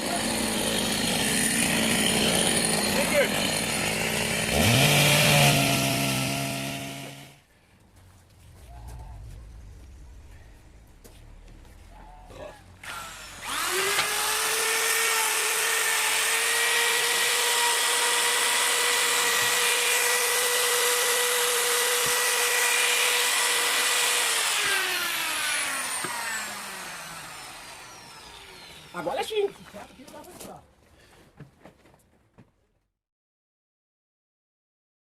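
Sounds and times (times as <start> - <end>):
electric power tool whining: 0.0 - 7.4, 12.8 - 30.4.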